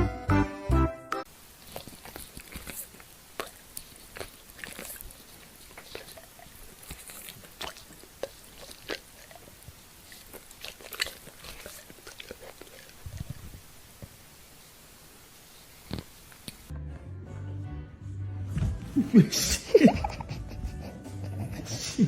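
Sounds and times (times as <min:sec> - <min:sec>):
dog chewing: 0:01.6 - 0:14.2.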